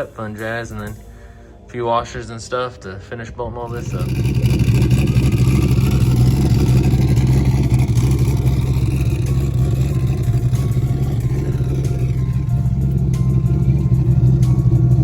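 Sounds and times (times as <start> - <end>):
car engine idling: 3.7 - 15.0.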